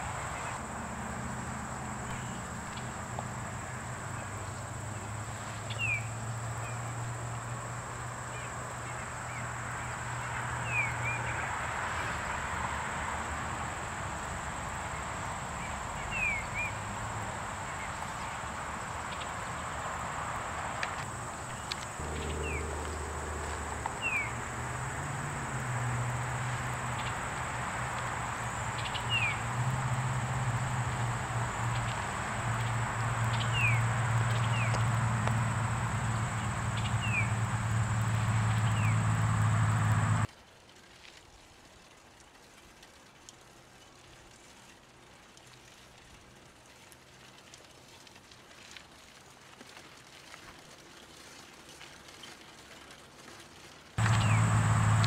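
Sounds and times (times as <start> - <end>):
faint outdoor ambience: 0.0 - 40.3, 54.0 - 55.0
steady high whine: 21.2 - 25.6
low hum: 21.2 - 40.3, 54.0 - 55.0
falling bird chirps: 54.0 - 55.0.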